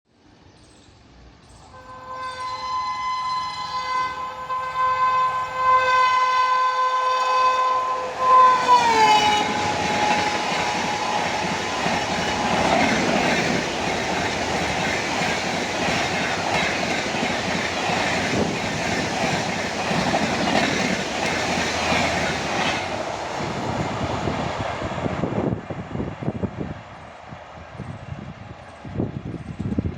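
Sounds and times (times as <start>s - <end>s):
train wheels rumbling on track: 1.6s - 29.9s
train horn blast: 1.7s - 13.6s.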